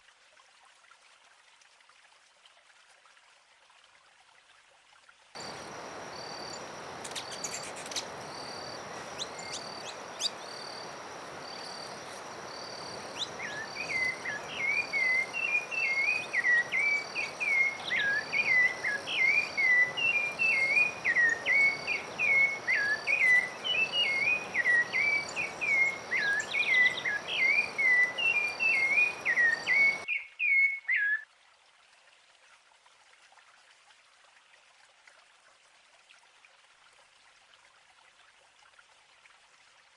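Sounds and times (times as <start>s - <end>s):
high insect buzz: 5.4s - 17.5s
steady hiss: 5.4s - 30.0s
regular pulsing chirp: 5.4s - 30.2s
songbird singing: 5.4s - 31.2s.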